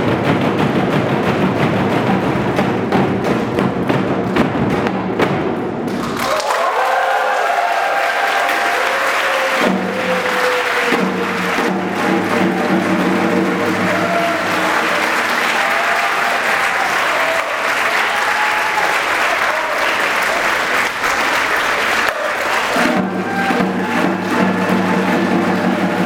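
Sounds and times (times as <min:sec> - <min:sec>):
audience applauding: 0:05.9 - 0:26.0.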